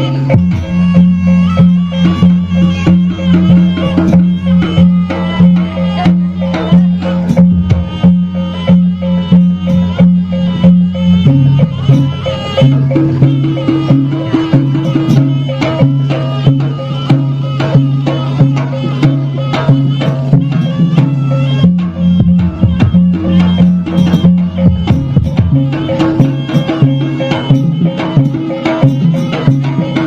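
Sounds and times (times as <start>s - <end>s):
hand drums beating: 0.0s - 30.0s
melodic instruments: 0.0s - 30.0s
held low notes: 5.5s - 15.2s.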